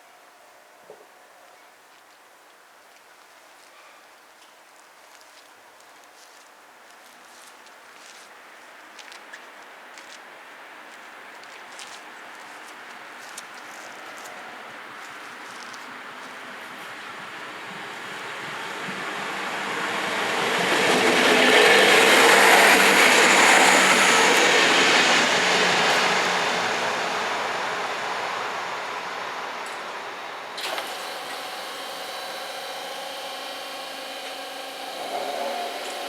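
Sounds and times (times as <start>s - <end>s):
train passing: 14.0s - 36.0s
mechanical hum: 21.6s - 36.0s.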